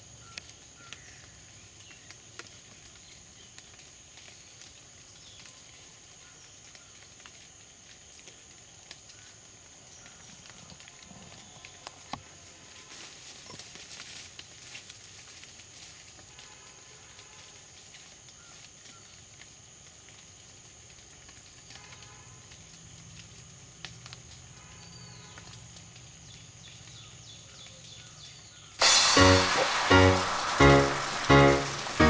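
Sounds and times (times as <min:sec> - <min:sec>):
loud music: 0:28.8 - 0:32.0
steady high hiss: 0:28.8 - 0:32.0.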